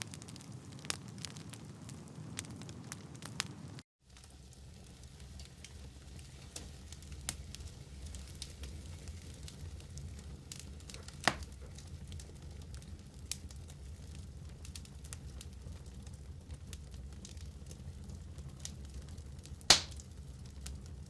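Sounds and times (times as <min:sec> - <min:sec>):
fire crackles: 0:00.0 - 0:21.0
fireplace flames rumbling: 0:00.0 - 0:21.0
loud sharp fire pop: 0:11.2 - 0:11.5, 0:19.7 - 0:20.0.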